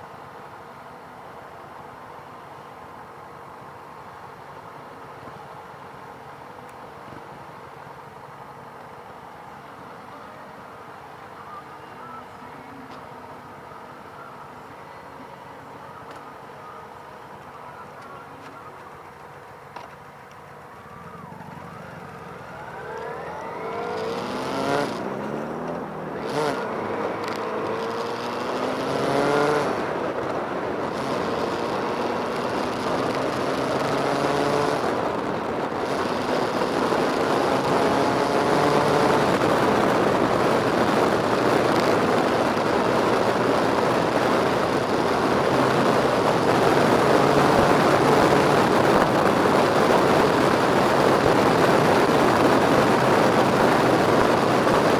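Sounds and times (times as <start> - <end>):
motorcycle engines revving: 12.9 - 54.9.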